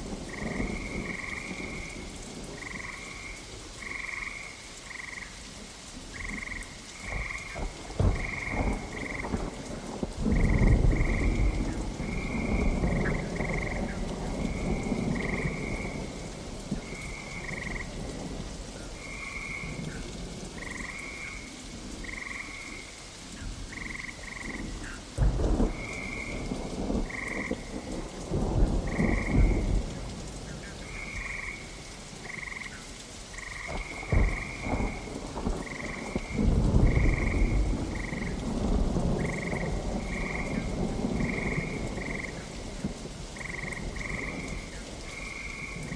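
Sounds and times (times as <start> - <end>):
steady rain: 0.0 - 45.9
rolling thunder: 7.0 - 18.3, 25.2 - 31.6, 33.3 - 45.9.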